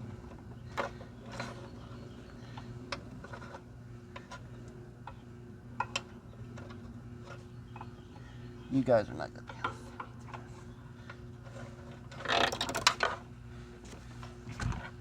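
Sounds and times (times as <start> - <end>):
metal parts clicking and rattling: 12.2 - 13.1.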